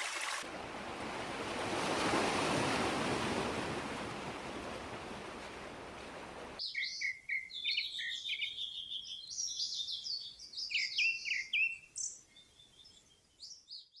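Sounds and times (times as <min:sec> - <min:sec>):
small birds singing: 0:06.6 - 0:14.0.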